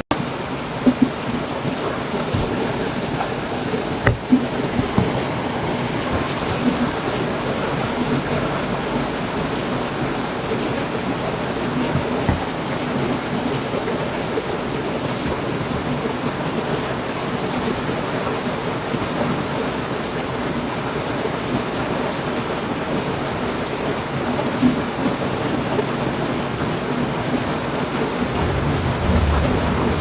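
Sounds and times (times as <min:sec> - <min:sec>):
heavy rain: 0:00.0 - 0:30.0
low knock: 0:04.0 - 0:05.3, 0:11.9 - 0:12.6, 0:28.3 - 0:30.0.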